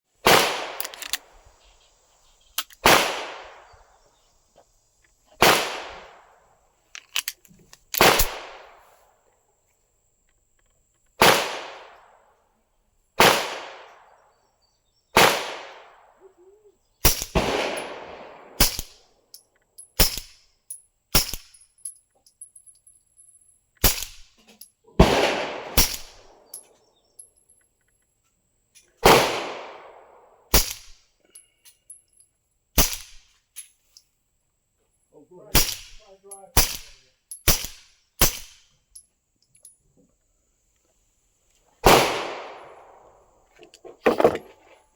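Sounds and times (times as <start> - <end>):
suppressed pistol shots: 2.8 - 3.7, 8.0 - 8.8, 17.0 - 19.0, 23.8 - 24.3, 25.0 - 26.6, 29.0 - 31.0, 32.8 - 33.3, 35.6 - 36.0, 36.6 - 38.6, 41.8 - 43.1.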